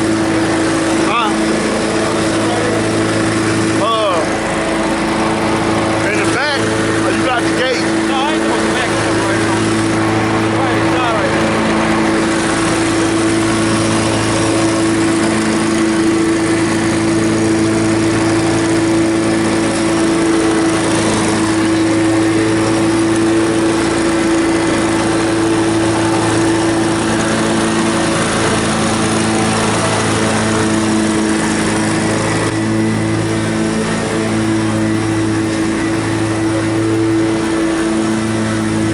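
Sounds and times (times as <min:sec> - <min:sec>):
lawn mower engine droning: 0:00.0 - 0:38.9.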